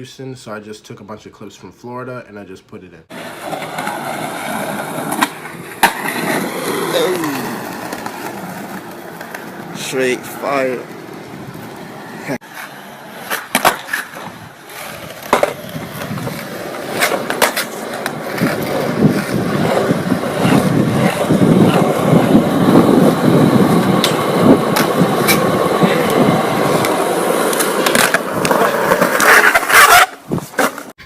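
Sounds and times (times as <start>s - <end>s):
skateboard clacks popping and landing: 3.1s - 6.8s, 7.6s - 9.7s, 12.5s - 30.9s
skateboard wheels rumbling on pavement: 3.1s - 30.9s.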